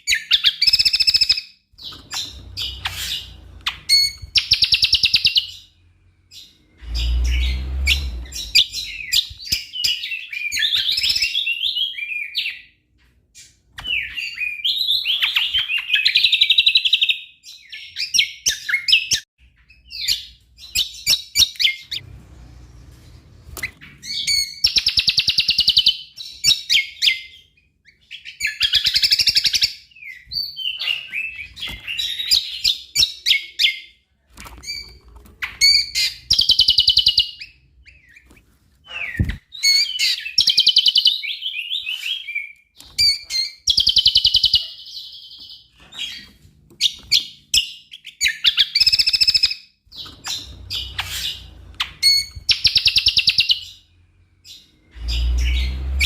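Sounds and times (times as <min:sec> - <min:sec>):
bird singing varied song with trills: 0:00.0 - 0:12.8, 0:34.7 - 0:56.0.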